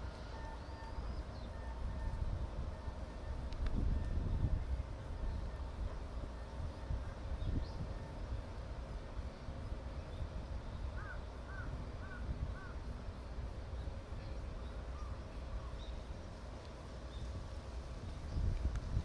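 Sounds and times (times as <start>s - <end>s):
crow cawing: 11.0s - 12.8s.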